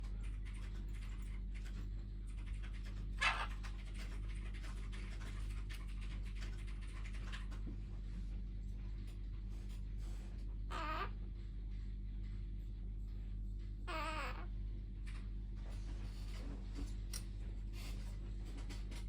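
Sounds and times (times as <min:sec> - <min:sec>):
steady low hum: 0:00.0 - 0:19.0
parrot muttering: 0:03.2 - 0:03.7, 0:10.7 - 0:11.2, 0:13.9 - 0:14.6.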